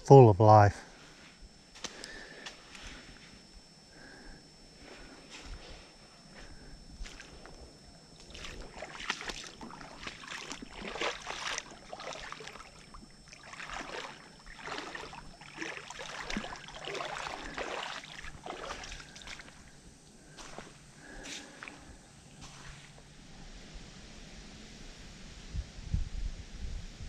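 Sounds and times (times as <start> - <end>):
creek water splashing: 8.2 - 19.8.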